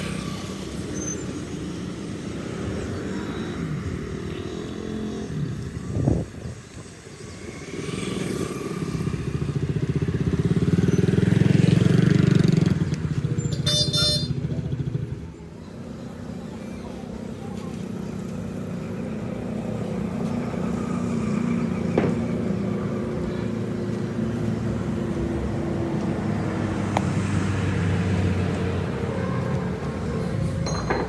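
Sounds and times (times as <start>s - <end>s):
vehicle engine running: 10.2s - 25.5s.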